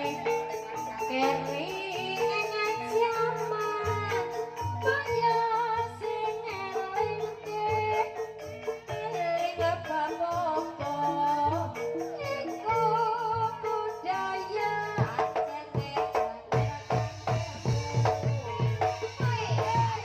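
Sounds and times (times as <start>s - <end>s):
instrumental accompaniment: 0.0s - 20.0s
person singing: 0.0s - 20.0s
drum strokes: 14.1s - 20.0s.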